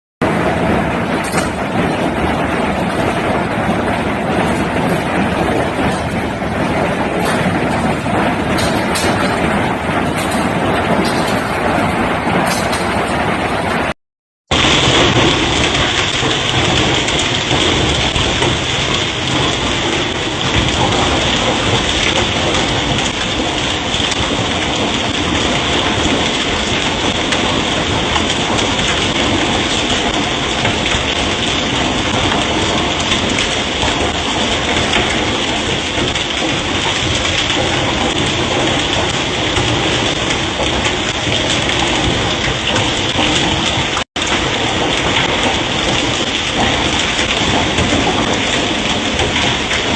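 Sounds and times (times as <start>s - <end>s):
heavy hail falling: 0.2s - 49.9s.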